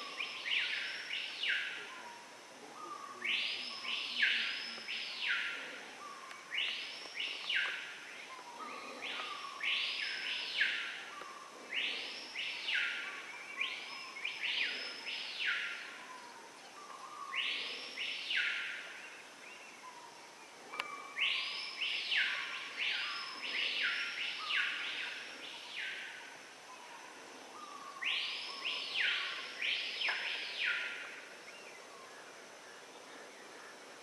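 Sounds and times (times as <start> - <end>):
birds calling with sweeping whistles: 20.7 - 26.9, 27.6 - 32.3.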